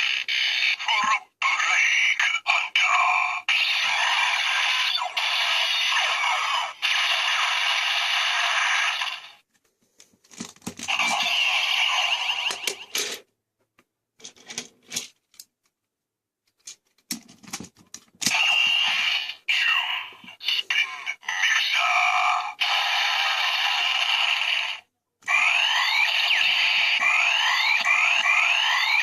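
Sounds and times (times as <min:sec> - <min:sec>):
toy crackling electronic noise: 0:00.0 - 0:09.4, 0:10.8 - 0:13.2, 0:18.2 - 0:29.0.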